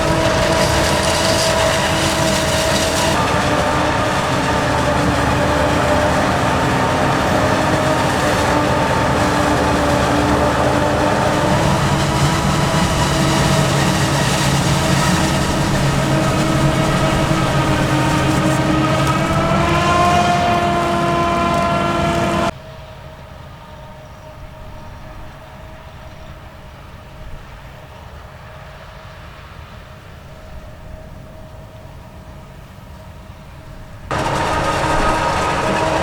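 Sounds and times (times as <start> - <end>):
diesel farm machinery droning: 0.0 - 22.6, 34.1 - 36.0.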